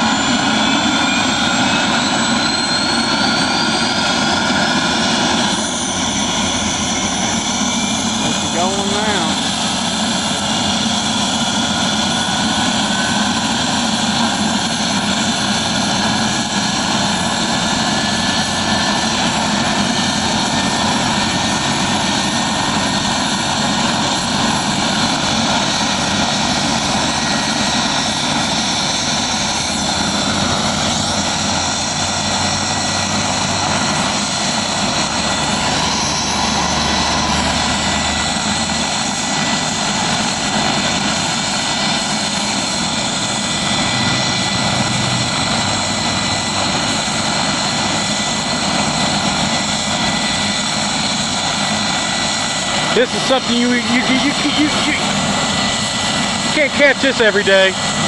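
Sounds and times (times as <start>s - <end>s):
thin whine rising in pitch: 0.0s - 9.6s
helicopter engine and rotors: 0.0s - 58.0s.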